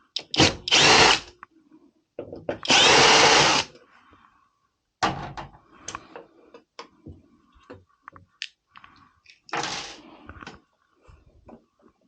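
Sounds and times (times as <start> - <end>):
knocks and clicks of parts and tools: 2.2 - 2.8, 5.0 - 8.3.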